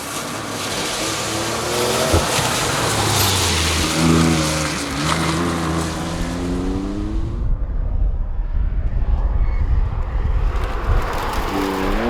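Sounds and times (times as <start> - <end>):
car engine accelerating hard: 0.6 - 7.5.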